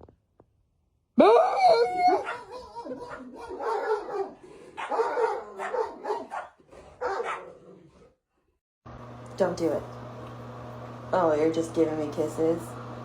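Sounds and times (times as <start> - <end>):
dog barking and yowling: 1.2 - 8.1.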